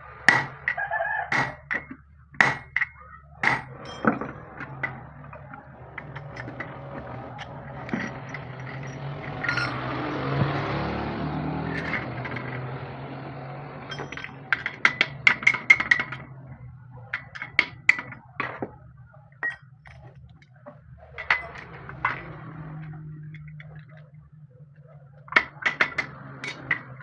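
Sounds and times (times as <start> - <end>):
low hum: 0.0 - 26.8
metal tools clinking: 0.3 - 10.8, 11.6 - 13.0, 13.8 - 18.7, 19.3 - 24.2, 24.8 - 27.0.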